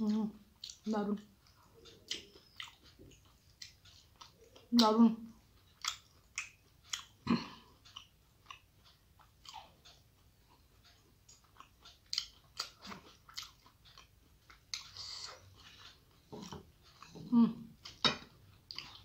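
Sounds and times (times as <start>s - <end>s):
close chewing: 0.0s - 19.0s
wet mouth clicks and lip smacks: 5.8s - 7.2s.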